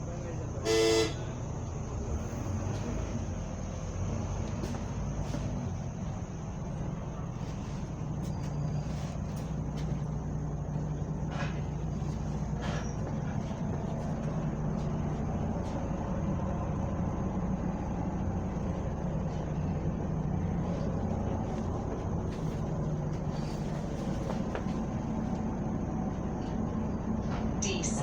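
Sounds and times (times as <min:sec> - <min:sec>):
bus engine drone: 0:00.0 - 0:28.0.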